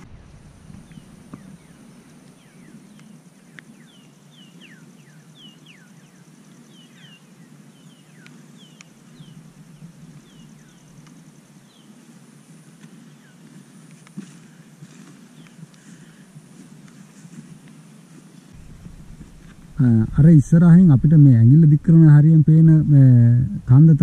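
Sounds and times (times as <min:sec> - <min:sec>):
low background rumble: 0:18.6 - 0:24.0.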